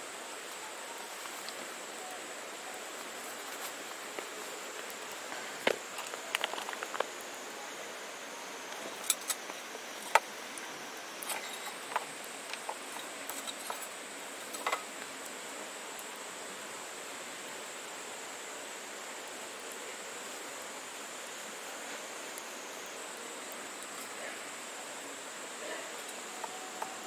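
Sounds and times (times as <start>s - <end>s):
fire hissing: 0.0s - 27.0s
fire crackling and popping: 0.3s - 7.6s, 8.6s - 15.3s.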